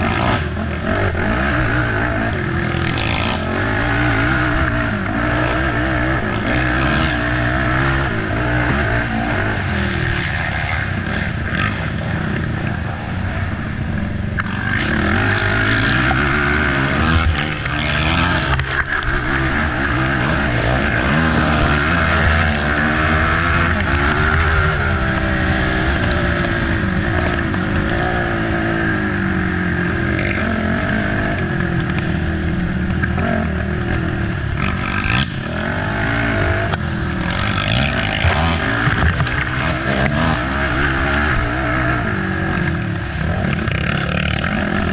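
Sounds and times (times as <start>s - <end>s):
atv engine revving: 0.0s - 44.9s
knocks and scrapes over rough ground: 37.3s - 40.4s.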